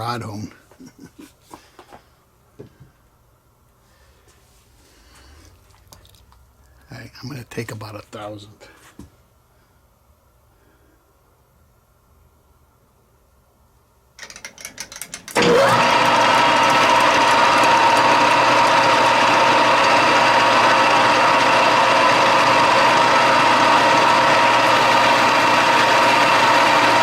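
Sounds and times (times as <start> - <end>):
machine tool motor whine: 15.3 - 27.0.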